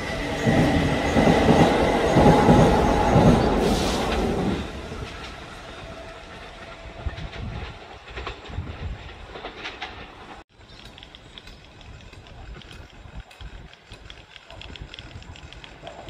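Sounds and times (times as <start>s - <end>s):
train rumbling on rails: 0.0s - 16.0s
wheels clicking over rail joints: 6.2s - 16.0s.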